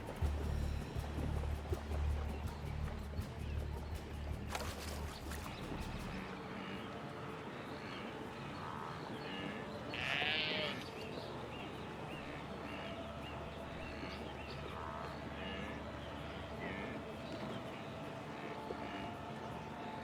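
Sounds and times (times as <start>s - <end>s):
wildebeest nasal calls: 6.4s - 11.1s, 13.9s - 19.5s
loud rough wildebeest call: 6.5s - 11.0s, 14.8s - 17.0s.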